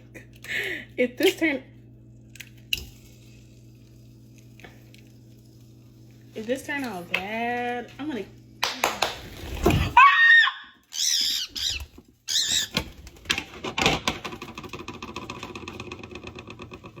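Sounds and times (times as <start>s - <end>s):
bird screaming shrill calls: 10.0s - 12.8s.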